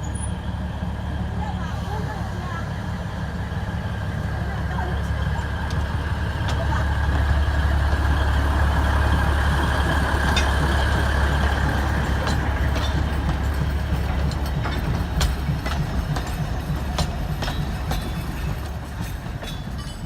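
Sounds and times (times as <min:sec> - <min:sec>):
locomotive engine rumbling: 0:00.0 - 0:20.0.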